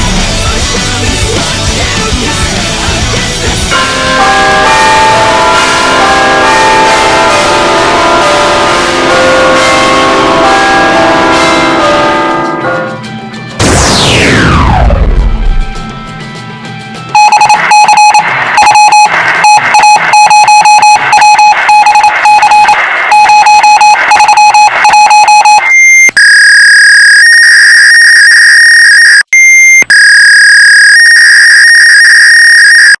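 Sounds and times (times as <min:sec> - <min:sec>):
fax machine beeping: 0:17.2 - 0:33.0
fax machine electronic screech: 0:17.2 - 0:33.0.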